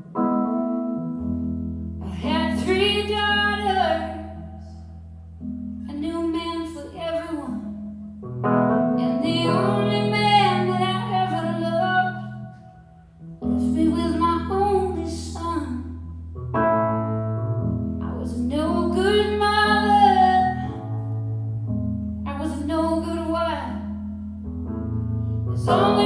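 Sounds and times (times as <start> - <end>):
piano chords: 0.0 - 26.0
woman singing: 2.0 - 4.8, 5.9 - 7.8, 9.0 - 12.6, 13.4 - 16.0, 18.0 - 20.9, 22.3 - 24.0, 25.5 - 26.0.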